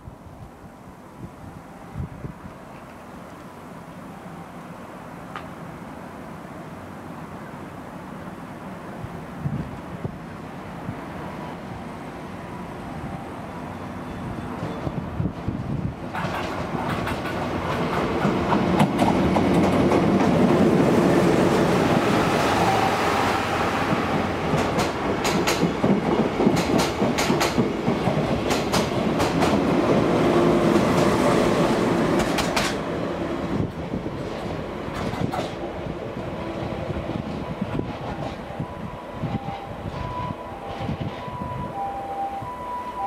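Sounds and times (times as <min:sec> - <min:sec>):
diesel train passing: 0:00.0 - 0:43.0
wheels clacking over rail joints: 0:16.1 - 0:21.8, 0:23.8 - 0:31.3, 0:32.1 - 0:32.9, 0:33.7 - 0:35.8.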